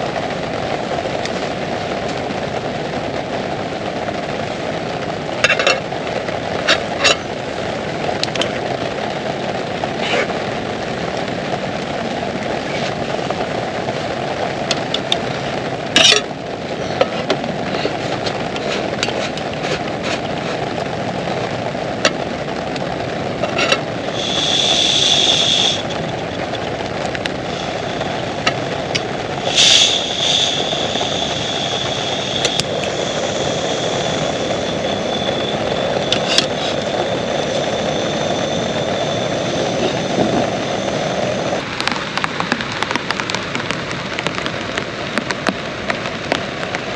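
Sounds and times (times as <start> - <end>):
heavy rain: 0.0 - 46.9
thin high whistle-like tone: 24.2 - 25.8, 29.5 - 41.6.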